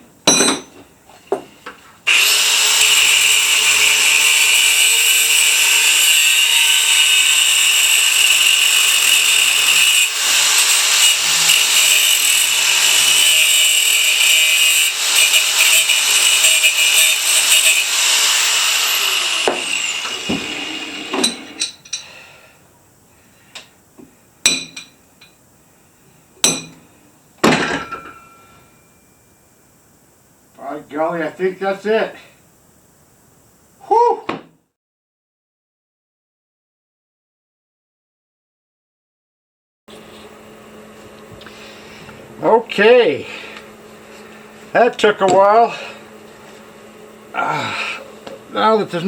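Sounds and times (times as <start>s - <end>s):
electric grinder grinding rock: 2.1s - 21.6s, 47.2s - 49.0s.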